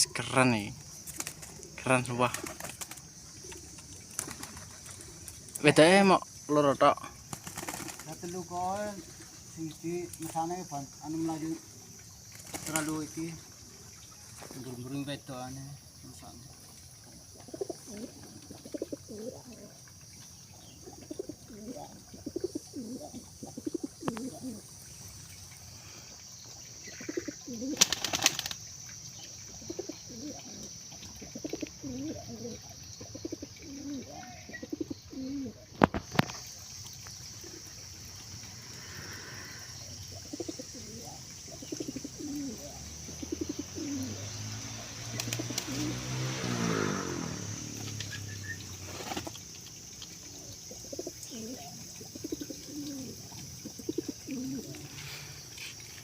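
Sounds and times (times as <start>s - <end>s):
pigeons cooing: 1.0s - 5.4s, 17.2s - 20.0s, 20.6s - 24.8s, 26.8s - 28.6s, 29.5s - 36.2s, 38.7s - 55.7s.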